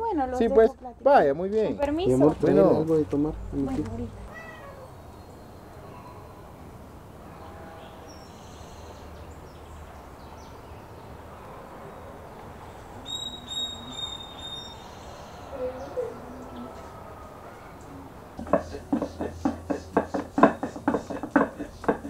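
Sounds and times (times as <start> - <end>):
background hiss: 12.3 - 22.0
low wavering bird call: 13.0 - 16.8
bird chirping high notes: 13.1 - 15.2.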